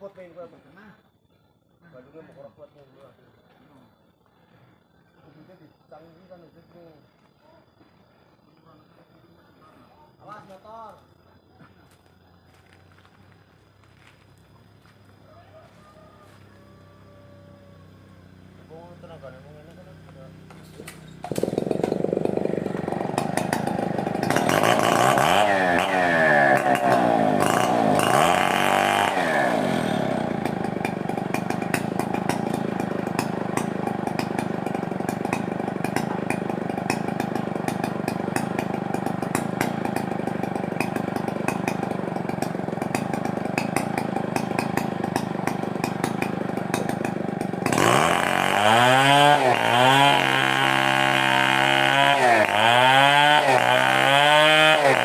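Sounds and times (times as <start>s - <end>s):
chainsaw revving: 20.2s - 55.0s.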